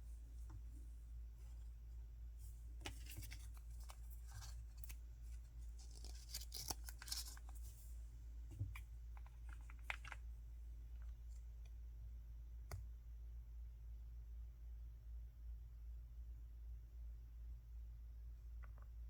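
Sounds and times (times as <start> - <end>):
low steady hum: 0.0 - 19.0
packaging rustling and crinkling: 2.9 - 7.8, 9.2 - 10.2.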